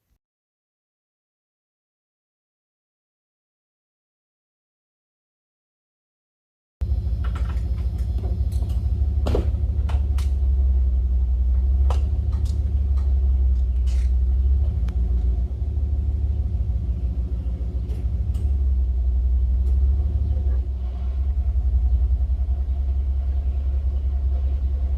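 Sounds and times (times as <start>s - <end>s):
engine rumbling at low revs: 6.8s - 24.9s.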